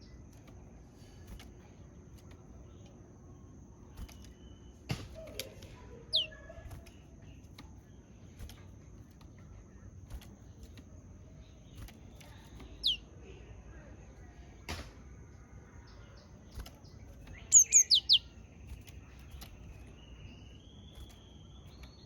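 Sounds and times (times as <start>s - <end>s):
faint short bird notes: 12.1s - 13.0s, 15.9s - 18.4s.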